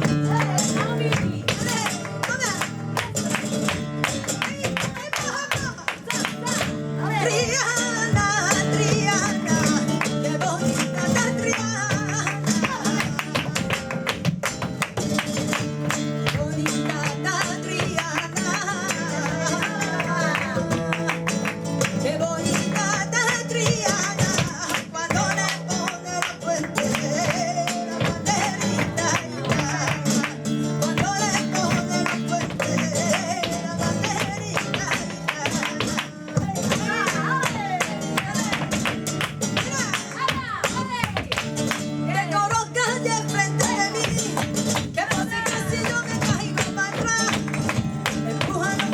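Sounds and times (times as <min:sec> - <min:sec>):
flamenco guitar playing: 0:00.0 - 0:48.9
person singing: 0:22.0 - 0:38.8.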